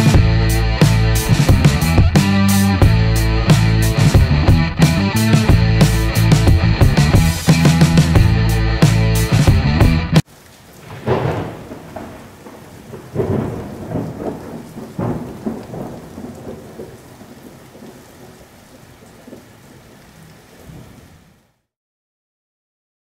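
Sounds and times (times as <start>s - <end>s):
steady rain: 0.0s - 4.2s, 10.2s - 21.7s
thunder rolling: 10.7s - 19.5s.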